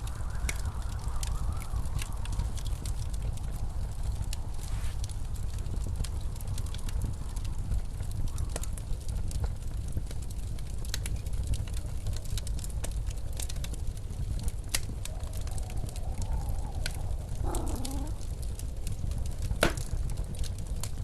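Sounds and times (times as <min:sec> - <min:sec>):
blizzard wind: 0:00.0 - 0:08.0, 0:13.2 - 0:19.3
wood fire crackling: 0:00.0 - 0:21.0.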